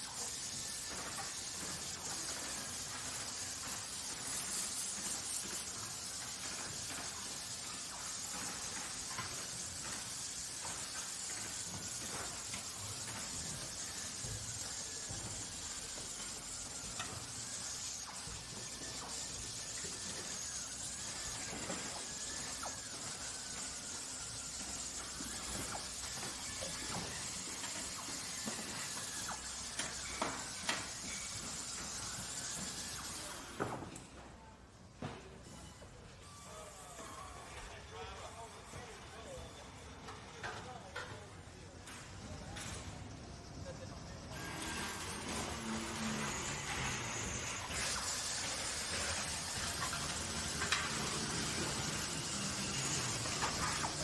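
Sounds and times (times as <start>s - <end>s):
steady hiss: 0.0s - 33.6s, 44.5s - 54.0s.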